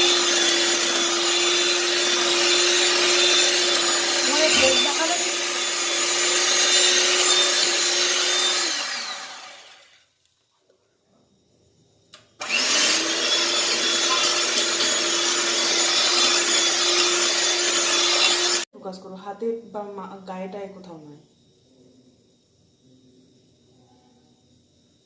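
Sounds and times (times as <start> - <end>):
electric hand mixer whirring: 0.0 - 10.0, 12.4 - 18.7.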